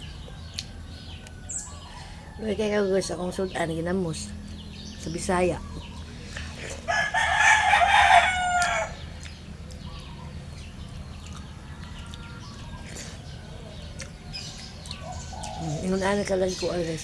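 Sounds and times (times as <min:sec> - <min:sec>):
rooster crowing: 0:06.9 - 0:09.1.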